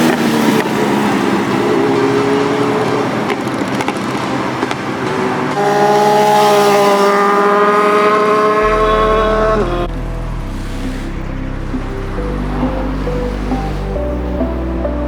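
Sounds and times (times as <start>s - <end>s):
motorbikes passing at speed: 0.0s - 15.0s.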